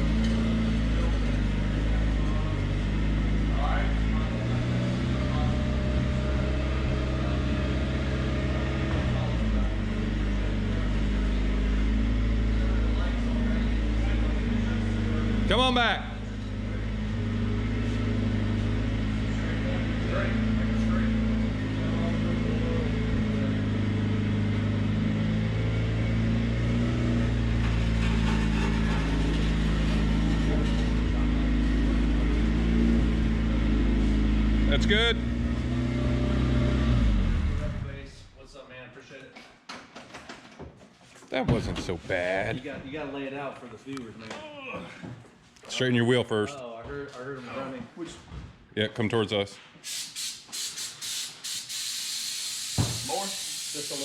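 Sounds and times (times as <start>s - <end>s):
truck engine running in reverse: 0.0s - 38.1s.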